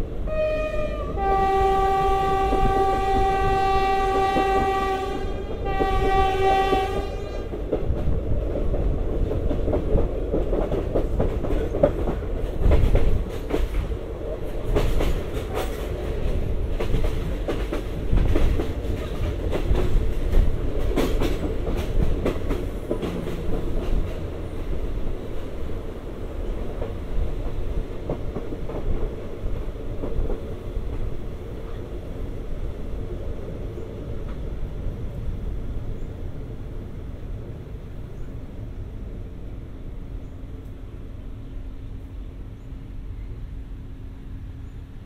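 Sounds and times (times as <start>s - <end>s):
train rumble: 0.0s - 45.0s
train horn blowing: 0.2s - 7.6s.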